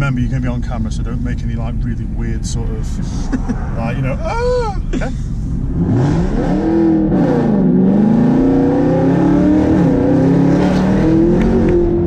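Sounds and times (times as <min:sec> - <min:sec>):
car engine accelerating: 0:05.2 - 0:12.0.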